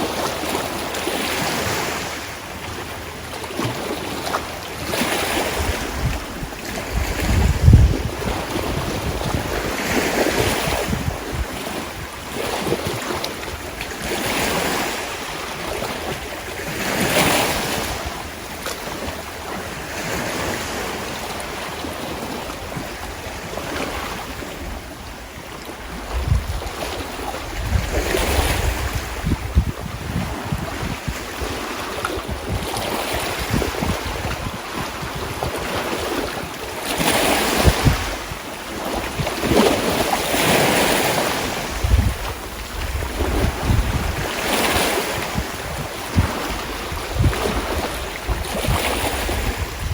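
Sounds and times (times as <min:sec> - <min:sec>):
sea waves washing in: 0:00.0 - 0:49.9
wind rumbling on microphone: 0:00.0 - 0:49.9.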